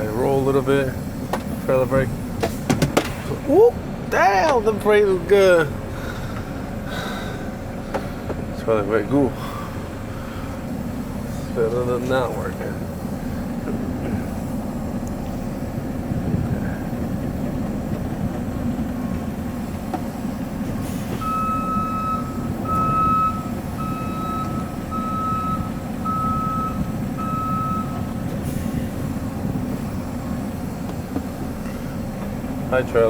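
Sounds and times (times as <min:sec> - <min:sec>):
diesel truck engine running: 0:00.0 - 0:33.0
reversing alarm beeping: 0:21.2 - 0:28.2.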